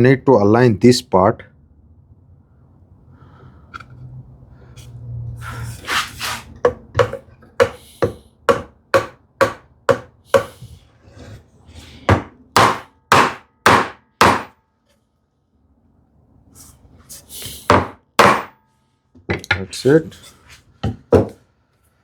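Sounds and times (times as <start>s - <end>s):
hammer tapping on wood: 6.7s - 10.6s, 12.1s - 14.5s, 17.7s - 18.6s.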